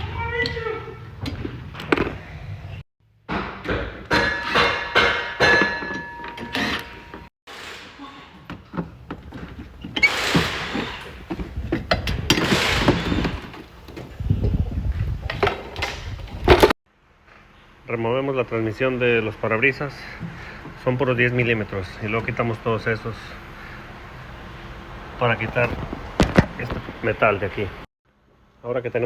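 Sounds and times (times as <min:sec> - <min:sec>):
knocks clunks and clicks of parts: 0:03.2 - 0:07.3, 0:08.3 - 0:14.2, 0:25.4 - 0:27.1.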